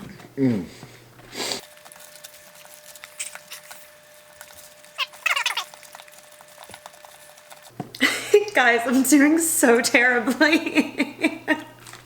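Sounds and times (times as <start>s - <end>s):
chewing and mouth clicks: 1.6s - 7.7s.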